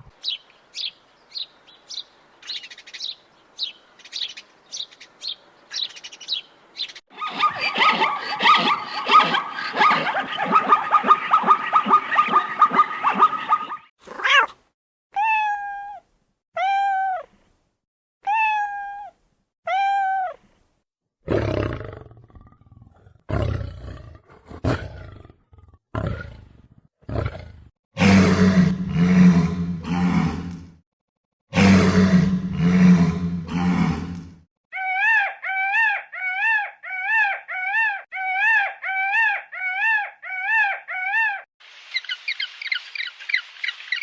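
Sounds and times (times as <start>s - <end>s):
rough animal roaring calls: 27.1s - 30.6s, 31.5s - 34.4s.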